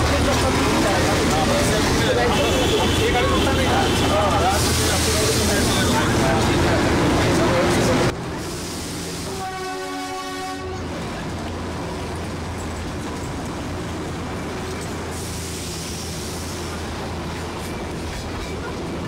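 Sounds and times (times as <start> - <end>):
train rumble and hum: 0.0 - 19.0
train horn blast: 9.2 - 11.0.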